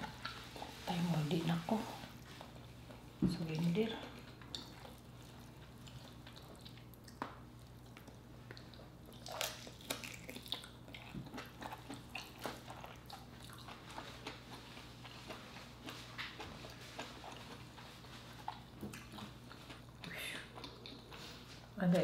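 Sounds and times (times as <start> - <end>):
low steady hum: 0.0 - 22.0
wet biting and chewing: 4.2 - 21.4.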